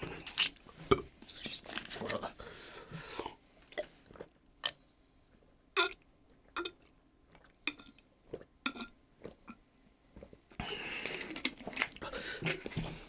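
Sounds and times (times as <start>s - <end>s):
mouth clicks and breaths: 10.2s - 13.0s.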